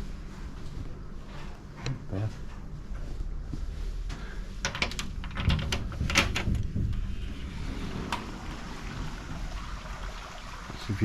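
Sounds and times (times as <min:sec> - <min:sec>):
steady low rumble: 0:00.0 - 0:11.0
sharp clicks and knocks: 0:04.6 - 0:07.2.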